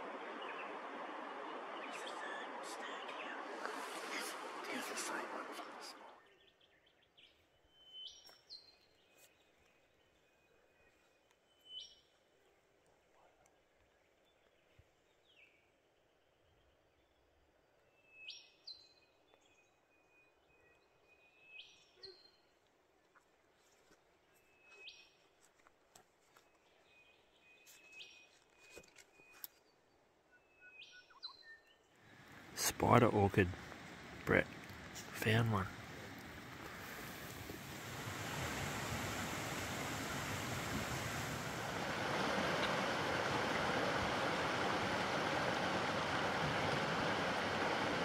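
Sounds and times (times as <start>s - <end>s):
faint bird chirps: 5.9s - 12.6s, 13.2s - 23.2s, 26.4s - 32.0s.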